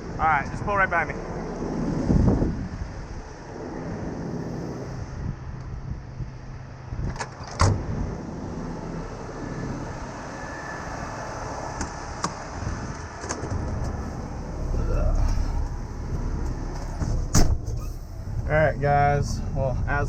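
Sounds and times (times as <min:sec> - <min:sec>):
truck engine idling: 0:08.1 - 0:20.0.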